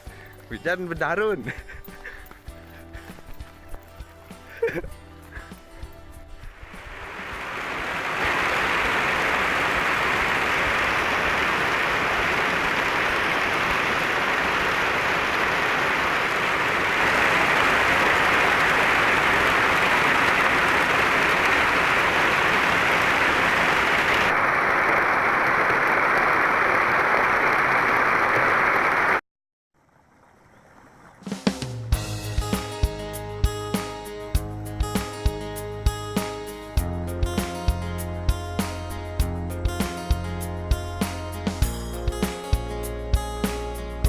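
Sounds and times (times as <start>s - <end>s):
heavy rain falling: 6.6s - 29.2s.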